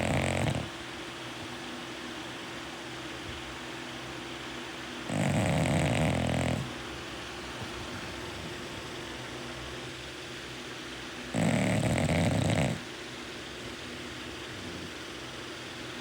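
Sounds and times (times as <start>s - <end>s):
dog snoring loudly: 0.0s - 0.8s, 5.0s - 6.8s, 11.3s - 15.3s
dog breathing: 0.0s - 1.6s, 5.0s - 6.9s, 7.5s - 9.0s, 11.3s - 15.6s.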